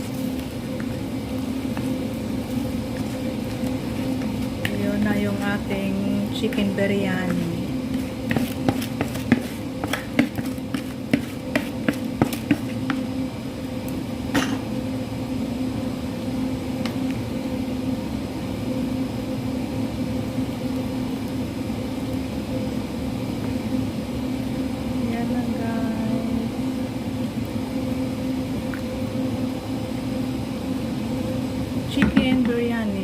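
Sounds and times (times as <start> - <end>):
steady low hum: 0.0 - 33.0
utensil scraping a cooking pot: 6.3 - 13.1.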